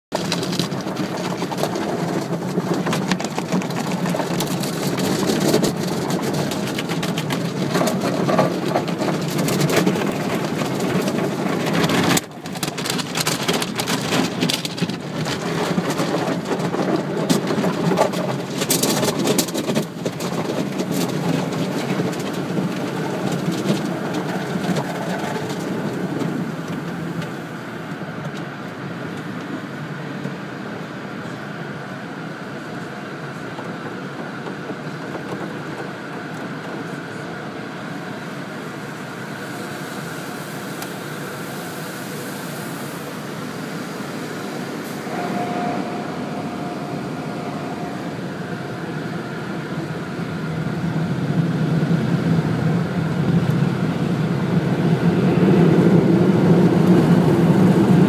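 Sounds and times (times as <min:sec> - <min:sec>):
steady low hum: 0:36.0 - 0:58.0.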